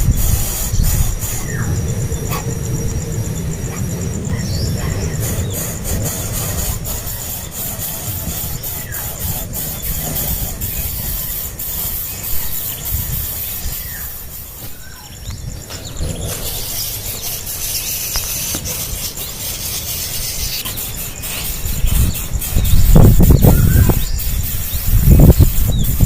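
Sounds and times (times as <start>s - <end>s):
low rumbling handling noise: 0.0s - 13.1s
nestling birds begging squeaks: 0.0s - 26.0s.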